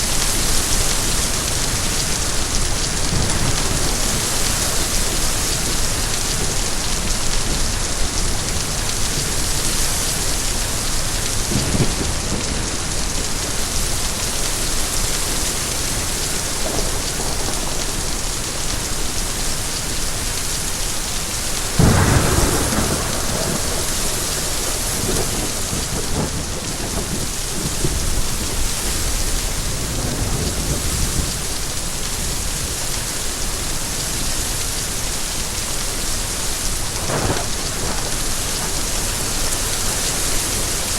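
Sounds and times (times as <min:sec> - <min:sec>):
heavy rain: 0:00.0 - 0:40.9
thunder rumbling: 0:15.8 - 0:19.3, 0:21.1 - 0:31.6, 0:36.9 - 0:40.9.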